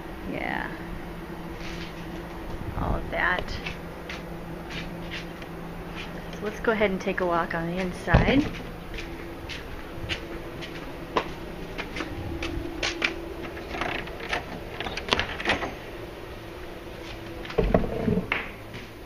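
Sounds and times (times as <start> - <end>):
faint steady hum: 0.0 - 19.0
footsteps: 3.4 - 6.4, 7.7 - 14.1
loud thump: 8.1 - 8.6.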